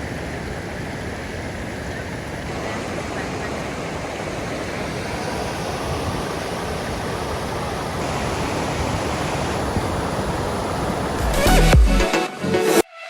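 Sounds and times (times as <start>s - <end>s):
waterfall rushing: 0.0s - 12.8s.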